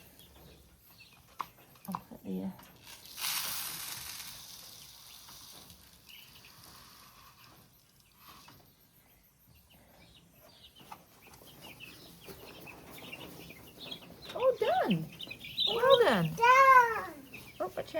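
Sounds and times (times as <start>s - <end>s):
baby chicks cheeping: 0.0s - 17.9s
burst of rustling: 2.9s - 5.9s.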